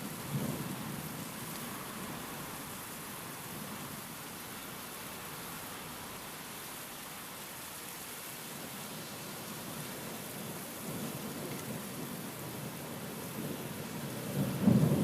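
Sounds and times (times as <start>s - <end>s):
rain: 0.0s - 15.0s
thunder rumble: 14.3s - 15.0s.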